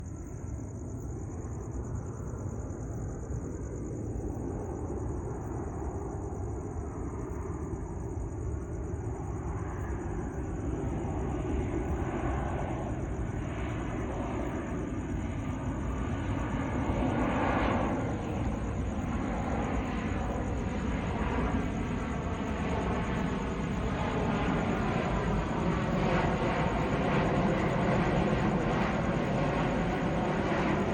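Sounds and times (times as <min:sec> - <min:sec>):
jet engine roar: 0:09.2 - 0:30.9.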